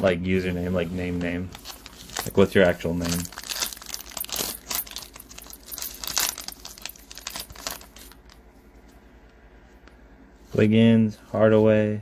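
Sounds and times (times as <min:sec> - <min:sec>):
plastic wrapper crinkling and tearing: 0:01.5 - 0:08.2.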